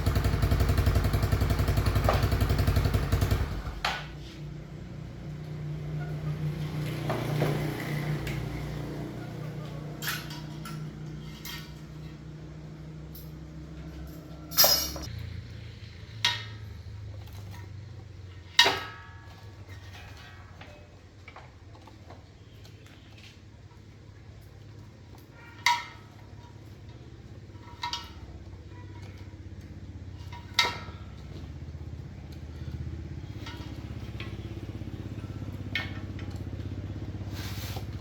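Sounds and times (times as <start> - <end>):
small engine running: 0.0 - 3.8, 4.6 - 10.2, 29.6 - 38.0
metal tools clinking: 9.6 - 15.2.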